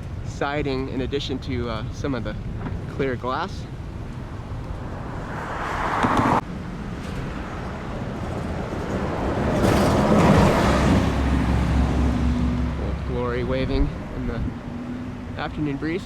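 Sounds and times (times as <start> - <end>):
passing vehicle rushing: 3.8 - 16.0.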